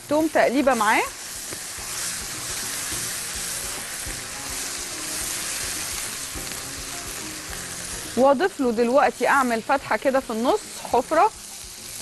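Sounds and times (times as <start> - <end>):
meat sizzling in a pan: 0.0 - 12.0
spatula stirring in a pan: 0.1 - 12.0.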